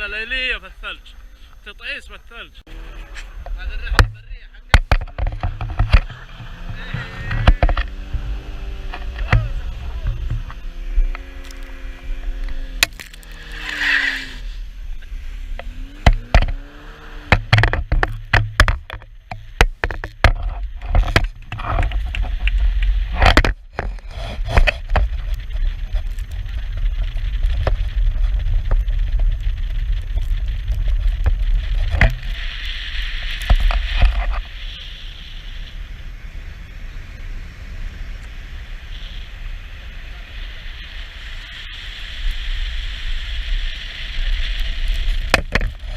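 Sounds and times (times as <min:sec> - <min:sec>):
car engine: 0:02.6 - 0:23.8
tyre and road noise: 0:02.6 - 0:45.9
knocks and thumps: 0:03.4 - 0:10.6, 0:17.2 - 0:25.3.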